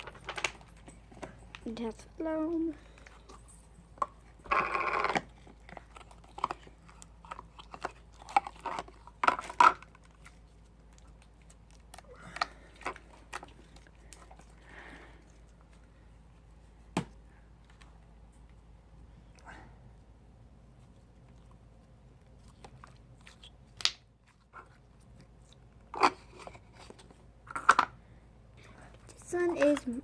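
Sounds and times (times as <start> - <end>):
slime squelching and popping: 22.6 - 24.6.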